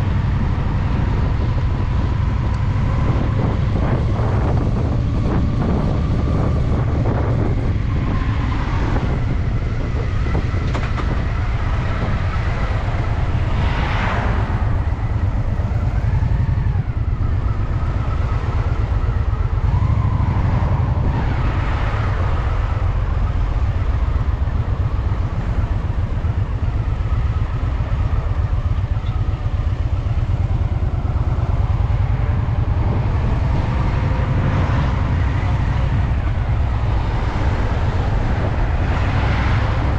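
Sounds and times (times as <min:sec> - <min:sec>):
motorcycle engine running: 0:21.8 - 0:39.9.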